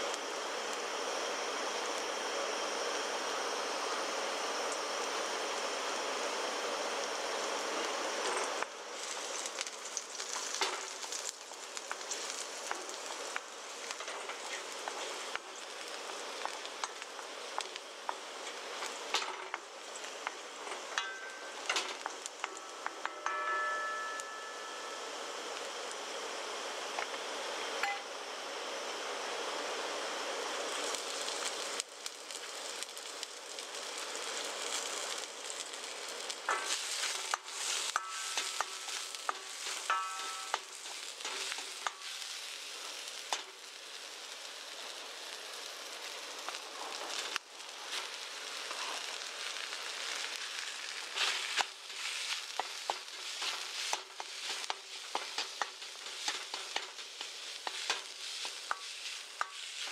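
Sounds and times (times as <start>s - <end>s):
food sizzling in oil: 0.0s - 59.9s
spatula scraping a pan: 36.5s - 42.6s, 50.1s - 59.9s.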